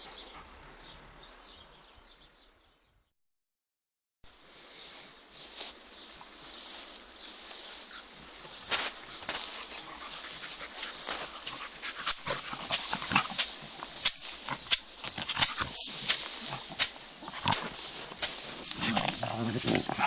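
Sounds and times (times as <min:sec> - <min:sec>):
dog sounds: 0:00.0 - 0:01.0, 0:08.0 - 0:20.0.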